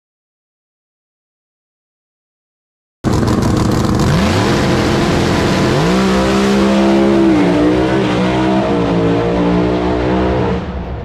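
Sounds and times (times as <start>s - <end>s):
race car engine at full throttle: 3.1s - 11.0s.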